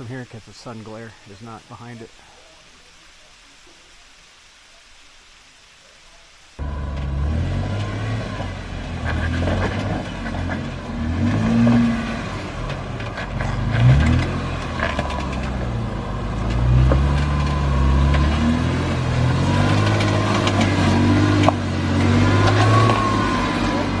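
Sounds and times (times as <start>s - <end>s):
off-road vehicle engine revving: 6.6s - 24.0s.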